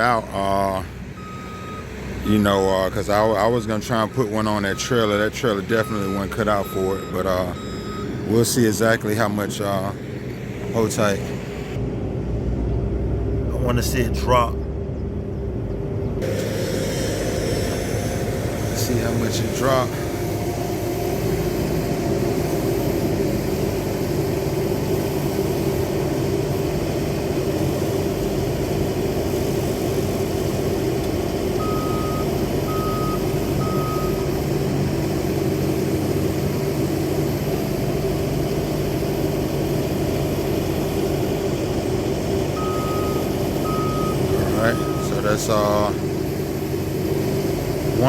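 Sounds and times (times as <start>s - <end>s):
engine running: 0.0s - 48.0s
reversing alarm beeping: 1.2s - 9.2s, 16.2s - 23.2s, 31.6s - 34.5s, 42.5s - 45.5s.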